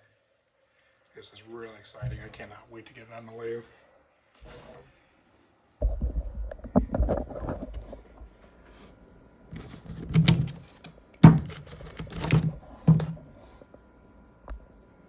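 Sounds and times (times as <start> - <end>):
handling noise: 9.5 - 13.6
metal parts knocking: 9.6 - 13.2.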